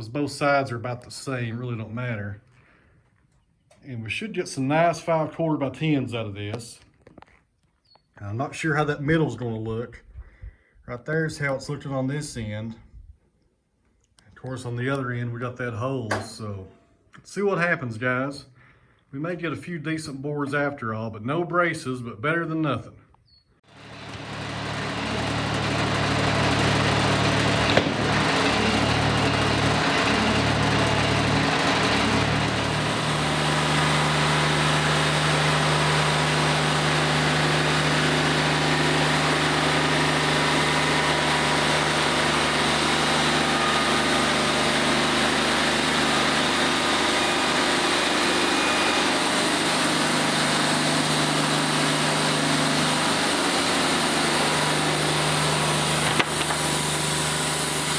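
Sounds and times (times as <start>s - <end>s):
band sawmill sawing log: 23.7s - 57.9s.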